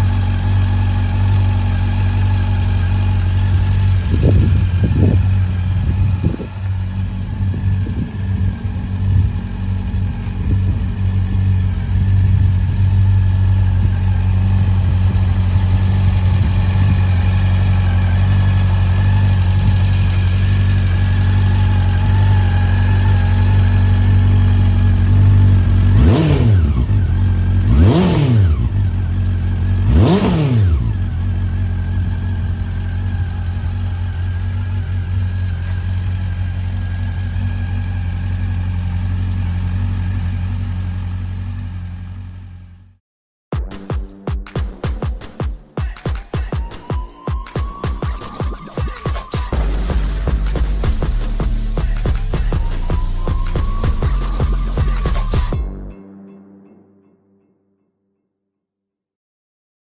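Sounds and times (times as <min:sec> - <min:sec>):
motorcycle engine idling and revving: 0:00.0 - 0:43.0, 0:43.6 - 0:55.6.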